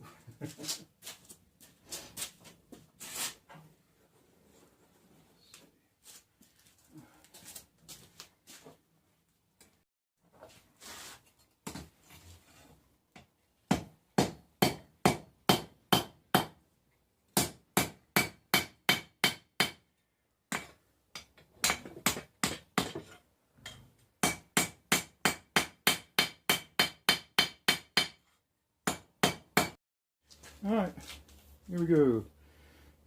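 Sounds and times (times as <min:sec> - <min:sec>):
hammer striking steel on anvil: 0:23.6 - 0:28.2.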